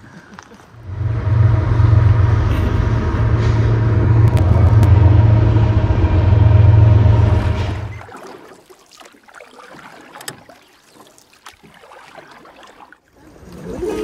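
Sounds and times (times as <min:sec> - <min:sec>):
wind: 0:00.0 - 0:14.0
diesel locomotive engine drone: 0:00.7 - 0:08.1.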